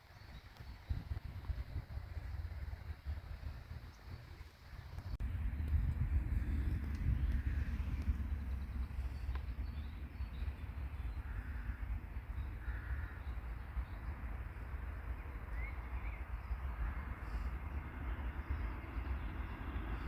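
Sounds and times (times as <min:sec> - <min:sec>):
low rumble: 0:00.3 - 0:20.0
faint bird chirp: 0:06.5 - 0:17.6
bird harsh calls: 0:07.0 - 0:17.7.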